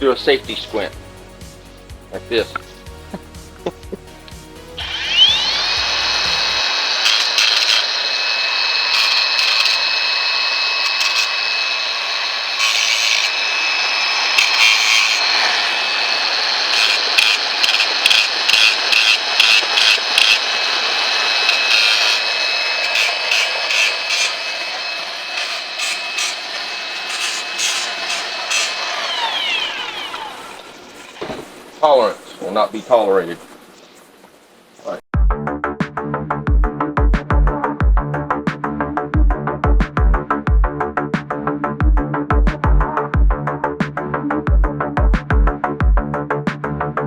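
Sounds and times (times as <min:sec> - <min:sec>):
power grinder grinding metal: 0:04.8 - 0:31.8.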